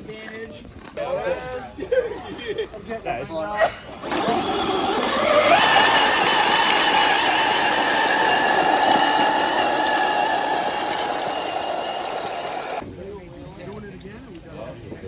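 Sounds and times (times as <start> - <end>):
electric motor whining: 4.0 - 12.8.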